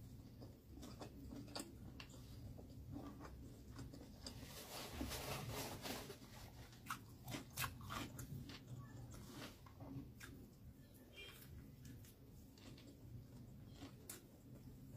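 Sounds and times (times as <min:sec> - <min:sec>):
chewing with mouth closed: 0:06.7 - 0:10.6, 0:11.2 - 0:14.7.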